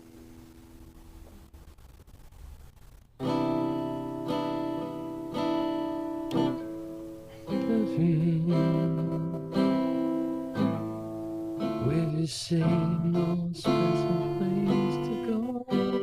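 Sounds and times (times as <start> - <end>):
guitar chords strummed: 3.2 - 16.0.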